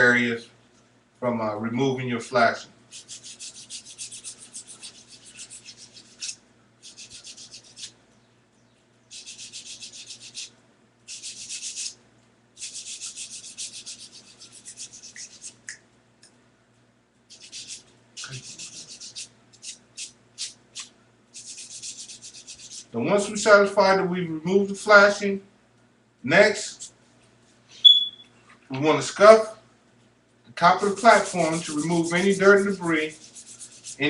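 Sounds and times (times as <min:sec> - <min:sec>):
sander rubbing plastic: 0:02.9 - 0:08.0, 0:30.8 - 0:34.0.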